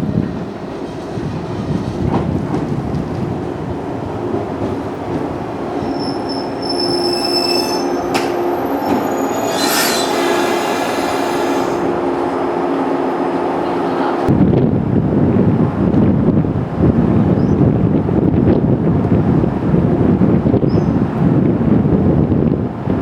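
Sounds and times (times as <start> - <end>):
electric train rumbling: 0.0 - 23.0
train wheels and brakes squealing: 5.8 - 12.0.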